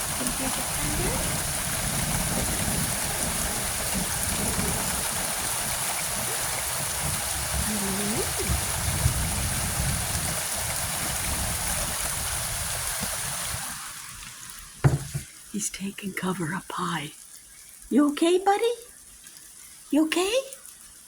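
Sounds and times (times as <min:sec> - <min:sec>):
low rumbling: 0:00.0 - 0:11.8
heavy rain pouring: 0:00.0 - 0:17.3.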